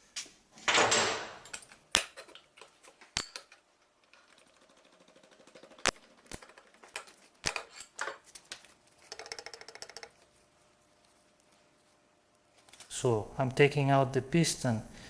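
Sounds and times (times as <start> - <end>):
metal parts clinking and knocking: 0.9 - 8.2.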